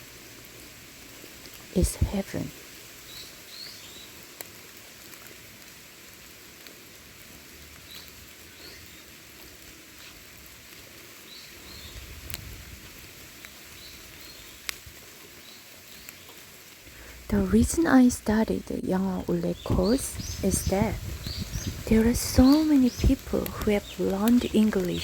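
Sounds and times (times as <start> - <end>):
light rain pattering and dripping: 0.0 - 25.0.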